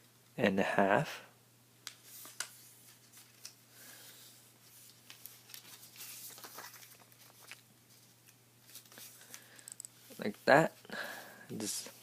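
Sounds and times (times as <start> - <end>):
paper being folded and creased: 2.0 - 3.6, 4.6 - 9.1.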